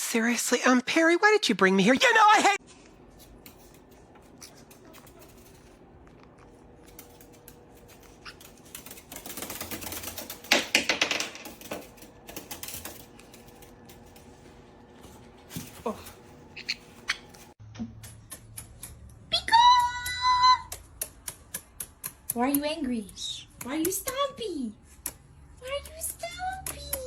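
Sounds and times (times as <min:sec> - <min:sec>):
sharp clicks and taps: 0:17.8 - 0:22.8.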